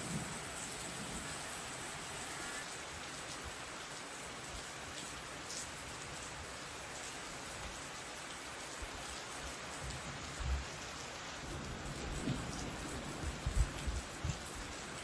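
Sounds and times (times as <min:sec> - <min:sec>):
heavy rain falling: 0:00.0 - 0:15.0
wind gusts on microphone: 0:11.5 - 0:14.8.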